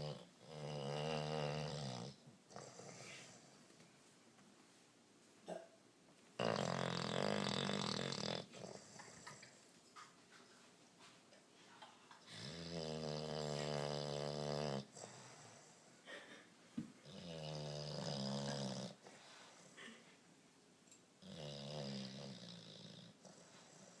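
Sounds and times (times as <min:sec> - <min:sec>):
dog snoring with buzzing: 0:00.0 - 0:03.5, 0:06.4 - 0:09.4, 0:12.3 - 0:15.9, 0:17.0 - 0:19.1, 0:21.2 - 0:24.0.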